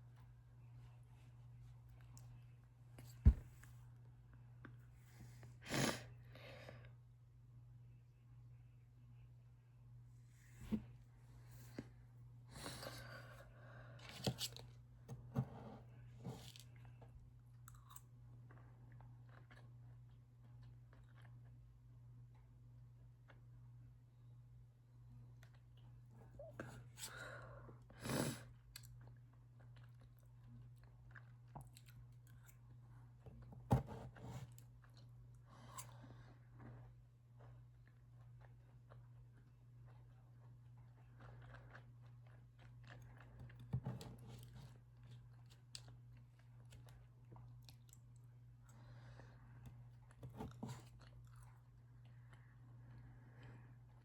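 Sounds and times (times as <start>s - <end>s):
breath: 12.5s - 14.2s, 48.7s - 49.6s
person chewing: 17.6s - 21.4s, 36.6s - 43.7s.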